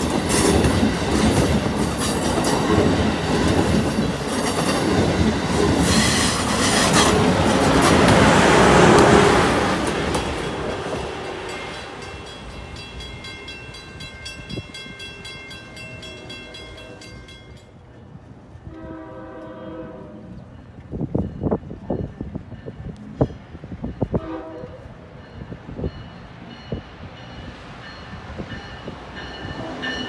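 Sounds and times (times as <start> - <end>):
train passing at speed: 0.0 - 30.0
crossing bell ringing rapidly: 10.1 - 17.8, 25.2 - 30.0.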